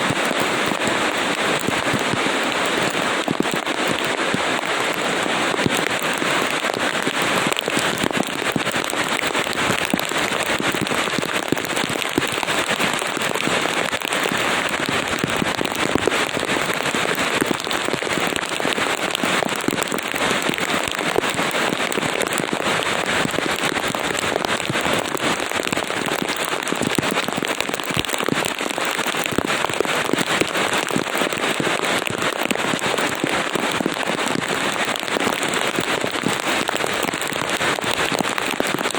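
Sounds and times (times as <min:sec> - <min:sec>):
raindrops ticking on a surface: 0:00.0 - 0:38.9
steady rain: 0:00.0 - 0:38.9.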